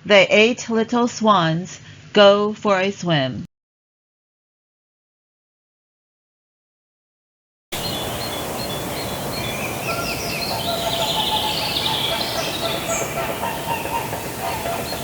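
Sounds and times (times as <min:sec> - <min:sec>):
birds chirping: 0:07.8 - 0:15.0
outdoor background noise: 0:07.8 - 0:15.0.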